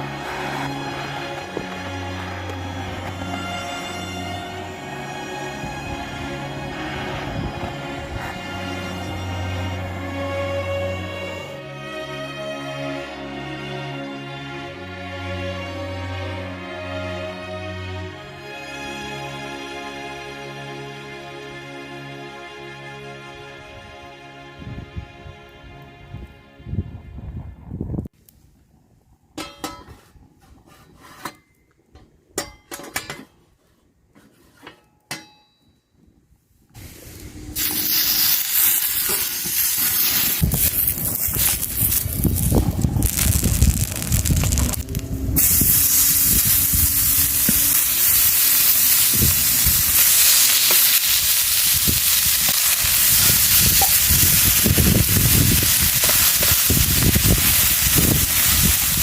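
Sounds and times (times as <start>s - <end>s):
meat sizzling on a grill: 37.6s - 59.0s.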